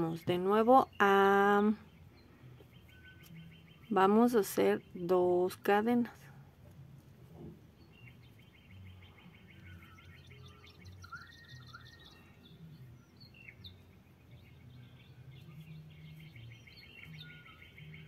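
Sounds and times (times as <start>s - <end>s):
low steady hum: 0.0s - 18.0s
faint bird trill: 0.7s - 5.1s, 7.8s - 18.0s
bird chirps: 0.8s - 5.1s, 7.8s - 18.0s.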